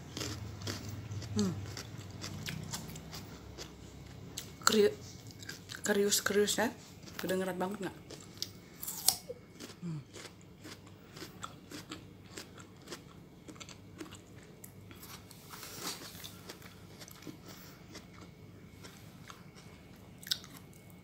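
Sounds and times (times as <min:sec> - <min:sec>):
crisp crunching of melon: 0:00.1 - 0:05.9.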